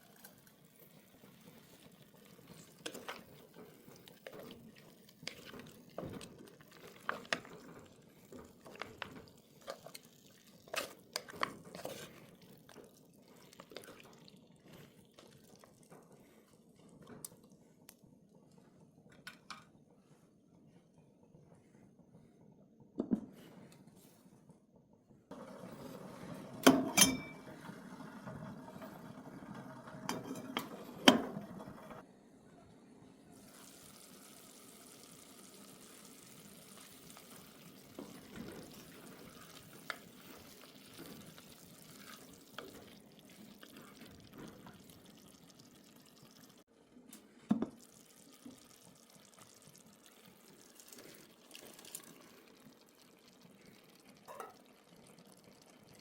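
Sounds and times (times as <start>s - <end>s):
liquid running and splashing: 33.4s - 46.6s, 47.8s - 56.0s.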